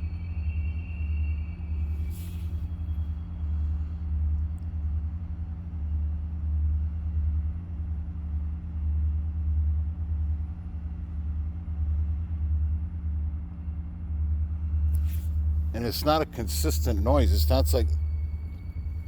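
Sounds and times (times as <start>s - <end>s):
eerie rumbling drone: 0.0s - 8.4s, 11.1s - 19.0s
low hum: 0.0s - 19.0s.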